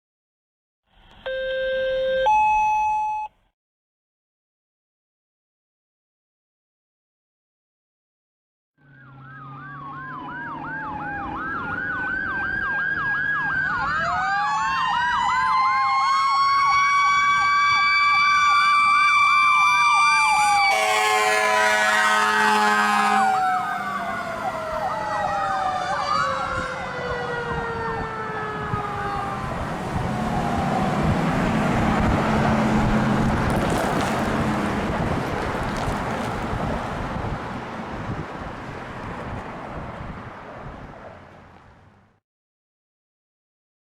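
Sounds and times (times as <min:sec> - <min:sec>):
engine and road noise: 0:00.9 - 0:03.5, 0:08.8 - 0:42.2
electronic siren yelping: 0:01.2 - 0:03.2, 0:08.8 - 0:31.3
mechanical siren wailing: 0:08.8 - 0:31.5
horn blast: 0:20.7 - 0:23.4.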